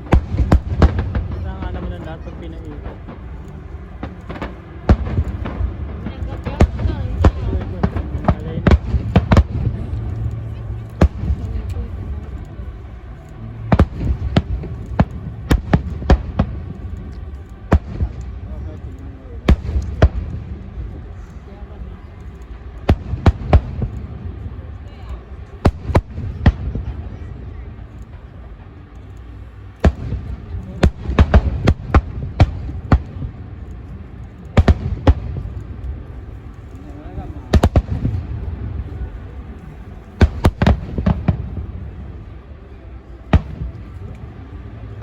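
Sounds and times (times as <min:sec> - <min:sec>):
fireworks bangs: 0:00.0 - 0:12.3, 0:40.2 - 0:41.7
low rumble: 0:00.0 - 0:45.0.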